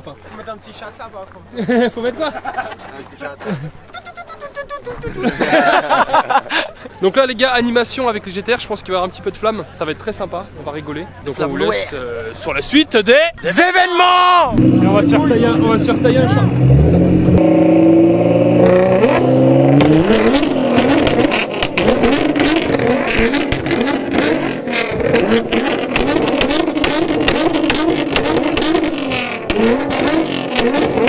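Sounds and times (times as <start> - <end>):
car engine revving: 14.5 - 31.0
exhaust pops and crackles: 18.5 - 31.0.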